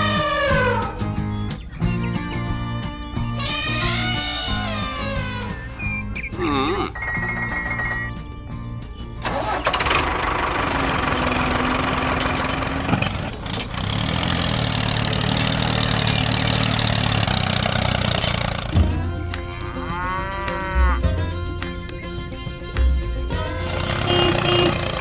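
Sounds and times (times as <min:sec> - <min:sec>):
elephant calls: 0:00.0 - 0:01.2
melodic music: 0:00.0 - 0:09.5, 0:18.7 - 0:25.0.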